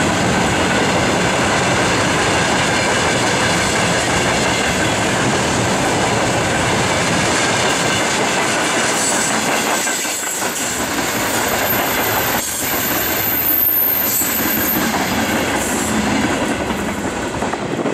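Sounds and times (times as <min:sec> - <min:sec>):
steel wheels clattering on rails: 0:00.0 - 0:17.9
high-pitched wheel squeal: 0:11.2 - 0:15.3.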